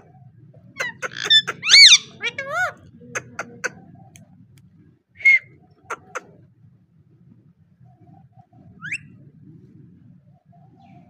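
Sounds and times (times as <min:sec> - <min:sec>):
parrot chirp: 0:00.8 - 0:03.5.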